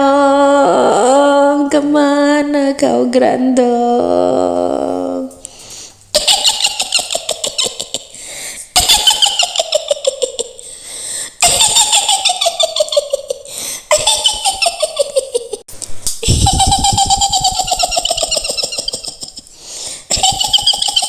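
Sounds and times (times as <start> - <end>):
woman cackling: 6.2 - 8.2, 11.4 - 15.6, 16.2 - 19.5, 20.1 - 21.0.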